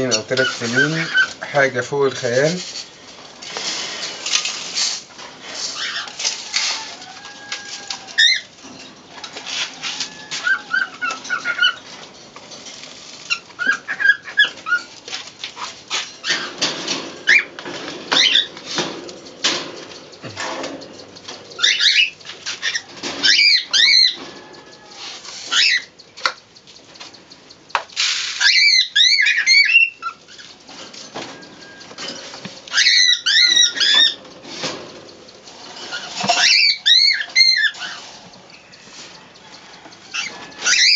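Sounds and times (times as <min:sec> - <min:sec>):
squabs squeaking: 0:00.0 - 0:26.4, 0:27.8 - 0:40.9
pigeons pecking grain: 0:00.0 - 0:40.9.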